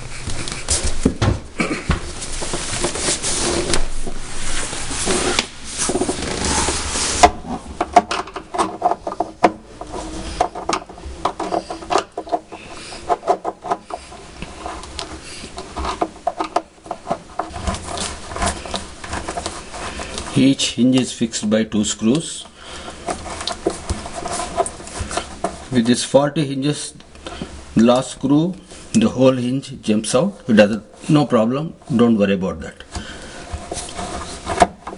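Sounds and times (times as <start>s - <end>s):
screwdriver scraping: 5.0s - 7.6s, 8.4s - 20.7s, 22.5s - 25.8s, 32.9s - 34.9s.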